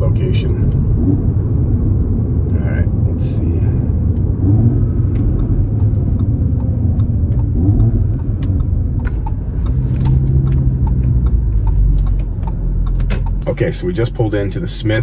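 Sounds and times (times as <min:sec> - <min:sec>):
car engine low rumble: 0:00.0 - 0:15.0
light ticks: 0:05.1 - 0:13.4.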